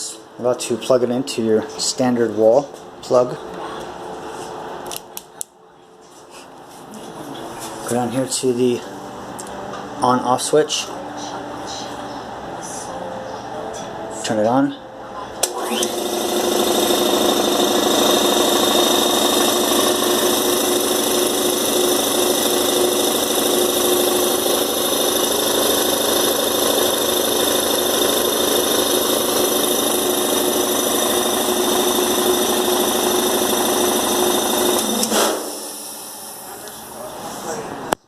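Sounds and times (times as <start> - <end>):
electric air compressor running: 15.4 - 37.1.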